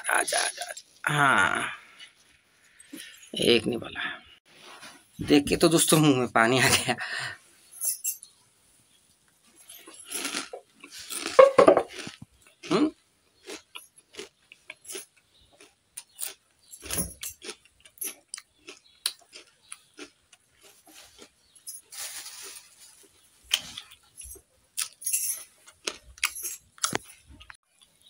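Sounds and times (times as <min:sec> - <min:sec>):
chewing puffed rice: 0:09.2 - 0:28.0
small crisp crunches: 0:09.5 - 0:12.8, 0:13.4 - 0:28.0.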